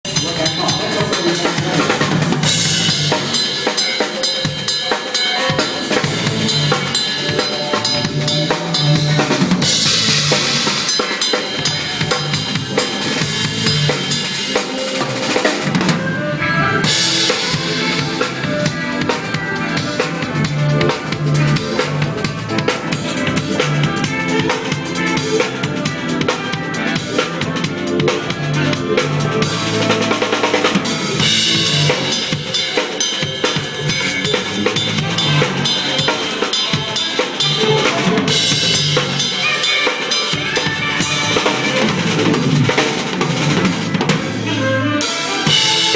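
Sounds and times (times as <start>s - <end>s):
recorded band track: 0.0s - 45.9s
drum kit kick and snare: 16.9s - 45.9s.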